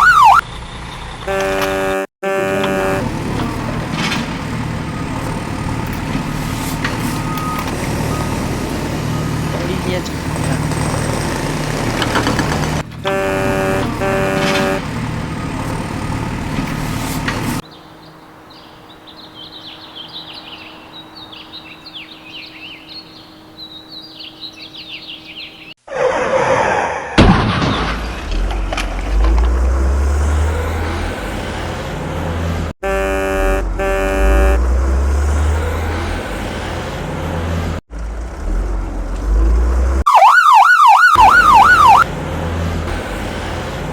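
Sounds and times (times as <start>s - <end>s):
loud engine noise: 0.0s - 18.6s, 27.9s - 43.9s
vehicle horn toots: 1.2s - 3.8s, 13.0s - 15.1s, 32.8s - 35.4s.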